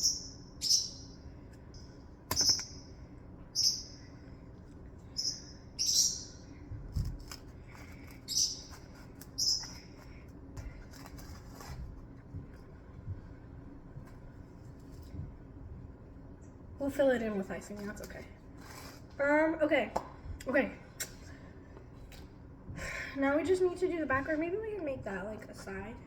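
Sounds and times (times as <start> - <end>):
small bird chirping: 0.0 - 1.2, 1.8 - 4.2, 5.0 - 6.6, 8.0 - 10.0.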